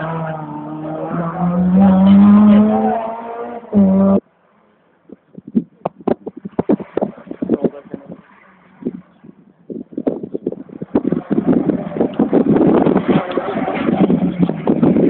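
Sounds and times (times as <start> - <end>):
rally car engine revving: 0.0 - 4.2, 10.0 - 15.0
knocks and crackles on microphone: 5.1 - 8.0, 9.7 - 15.0.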